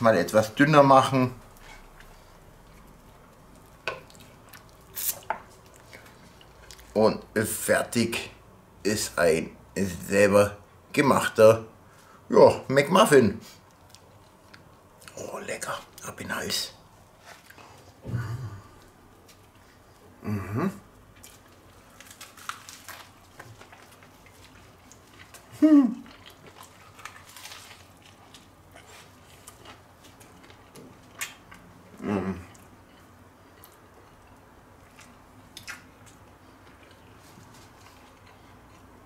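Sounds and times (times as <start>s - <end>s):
man chewing food: 1.4s - 7.0s, 13.6s - 15.2s, 16.9s - 20.2s, 20.9s - 39.0s
soft chewing clicks: 13.6s - 15.2s, 23.3s - 39.0s
short hummed vocal sounds: 18.0s - 18.9s, 20.1s - 20.9s, 25.5s - 26.1s, 31.9s - 32.6s.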